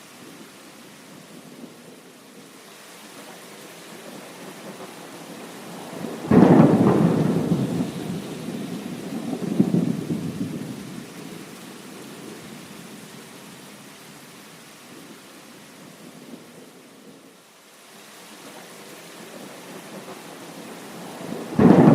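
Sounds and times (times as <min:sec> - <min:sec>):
heavy rain: 0:00.0 - 0:21.9
thunder crack and rumble: 0:06.0 - 0:11.0, 0:21.1 - 0:21.9.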